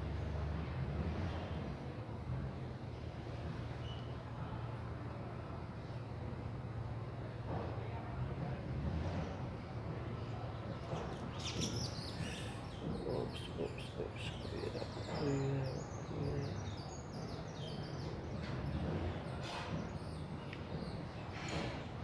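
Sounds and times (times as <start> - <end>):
steady background noise: 0.0 - 22.0
birds chirping: 10.4 - 21.5.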